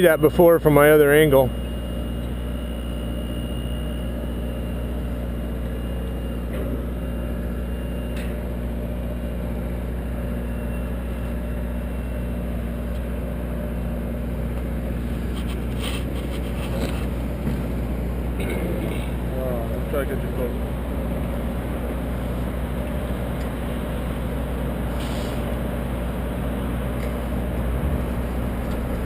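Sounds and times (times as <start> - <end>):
aerial lift engine running: 0.0 - 29.0.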